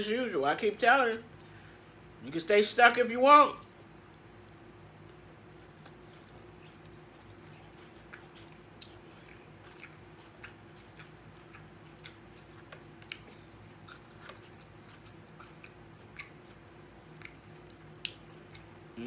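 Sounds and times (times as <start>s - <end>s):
faint steady hum: 0.0s - 19.0s
person chewing food: 4.1s - 19.0s
wet mouth smacks: 18.0s - 18.7s.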